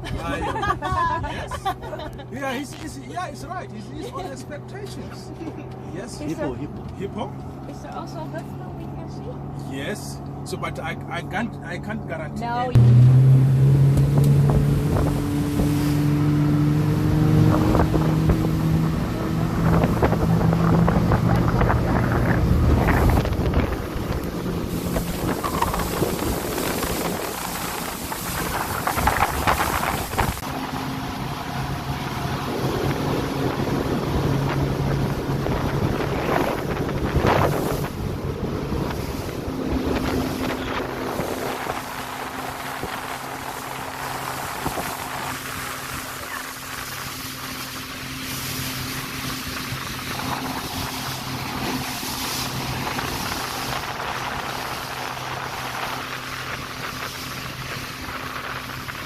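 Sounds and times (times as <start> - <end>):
boat engine humming: 0.0 - 59.0
water rushing past hull: 12.7 - 59.0
wind buffeting microphone: 12.7 - 59.0.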